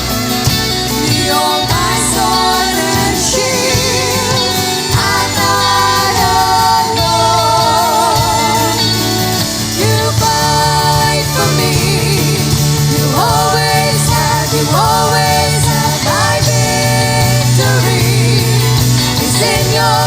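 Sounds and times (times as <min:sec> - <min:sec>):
band instrumental backing: 0:00.0 - 0:20.0
vocalists singing: 0:00.0 - 0:20.0.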